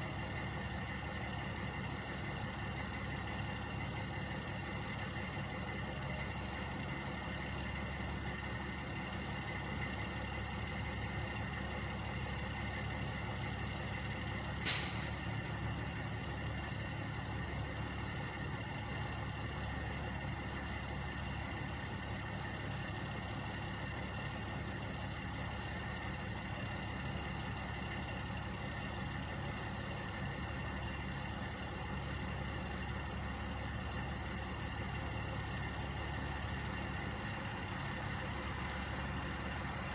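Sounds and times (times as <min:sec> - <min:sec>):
truck engines idling: 0:00.0 - 0:39.9
sharp hiss of air: 0:14.6 - 0:15.1.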